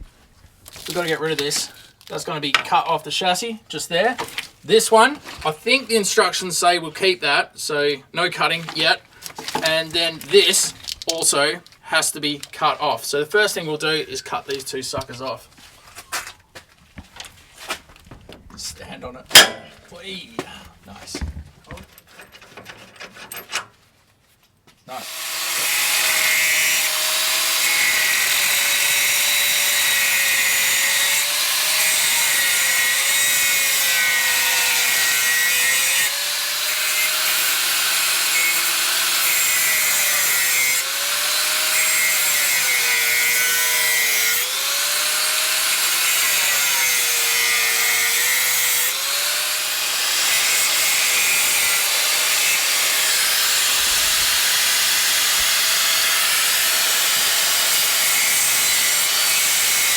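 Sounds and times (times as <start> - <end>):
angle grinder cutting steel: 19.3 - 19.8, 24.9 - 59.9.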